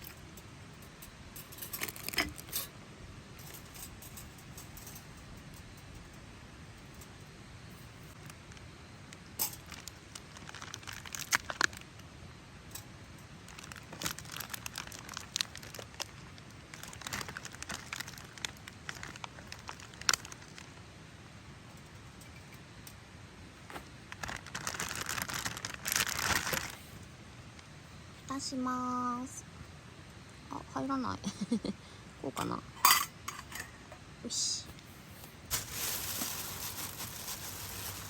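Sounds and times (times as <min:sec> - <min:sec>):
packaging crinkling: 0:09.5 - 0:12.0, 0:13.5 - 0:20.7, 0:24.1 - 0:26.8, 0:35.2 - 0:38.0.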